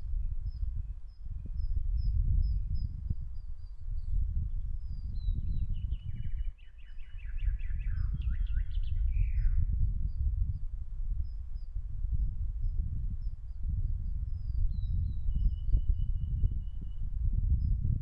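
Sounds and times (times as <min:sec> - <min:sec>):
wind buffeting microphone: 0:00.0 - 0:18.0
songbird chirps: 0:00.5 - 0:10.3.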